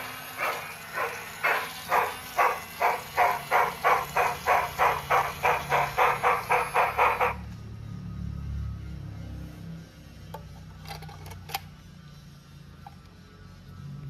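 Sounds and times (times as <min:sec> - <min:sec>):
steam locomotive chuffing: 0:00.0 - 0:07.5.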